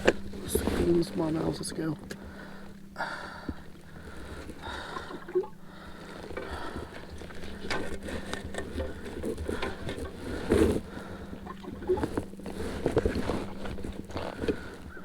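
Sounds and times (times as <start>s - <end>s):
faint steady hum: 0.0s - 15.0s
water lapping and splashing: 0.0s - 15.0s.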